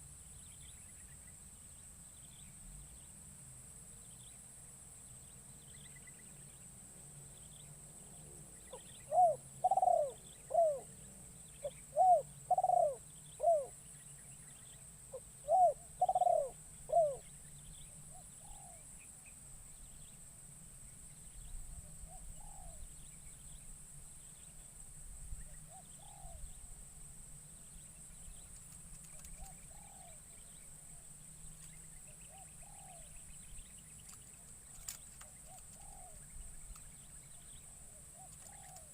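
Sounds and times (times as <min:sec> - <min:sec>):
high insect drone: 0:00.0 - 0:38.9
dove cooing: 0:08.7 - 0:10.9, 0:11.6 - 0:13.8, 0:15.1 - 0:17.3, 0:22.1 - 0:22.8, 0:25.7 - 0:26.4, 0:29.1 - 0:30.2, 0:32.3 - 0:33.1, 0:34.7 - 0:36.2, 0:37.7 - 0:38.9.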